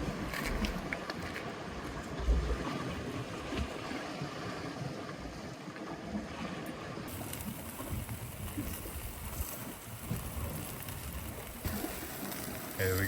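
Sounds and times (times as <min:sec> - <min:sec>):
sea water lapping against rocks: 0:00.0 - 0:13.0
wind on microphone: 0:07.1 - 0:12.0.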